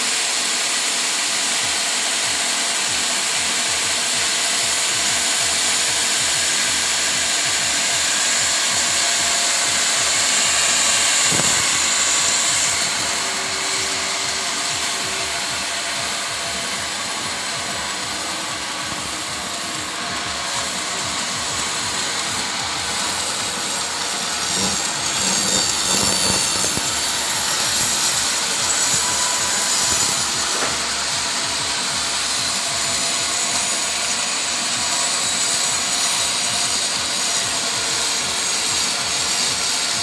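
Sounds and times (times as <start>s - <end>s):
circular saw cutting wood: 0.0s - 40.0s.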